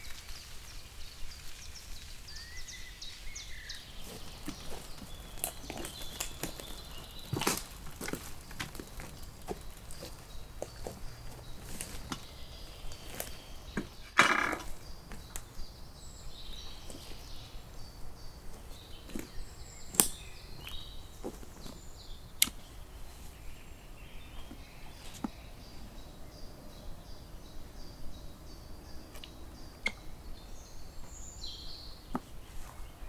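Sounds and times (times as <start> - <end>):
crunching rustle: 0.0 - 25.8
faint birds chirping: 0.0 - 33.0
sharp clicks and knocks: 13.1 - 15.5.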